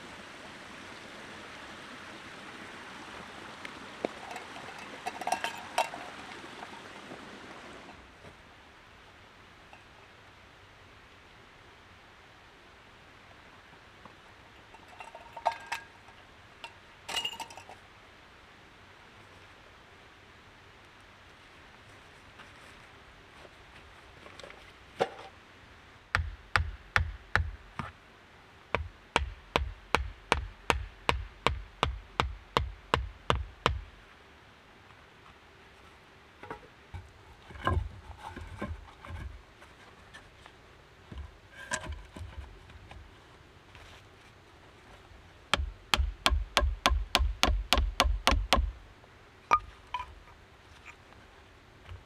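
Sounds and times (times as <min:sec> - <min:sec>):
hard knocks with low thud: 0:26.2 - 0:27.8, 0:28.8 - 0:33.9, 0:45.6 - 0:48.8.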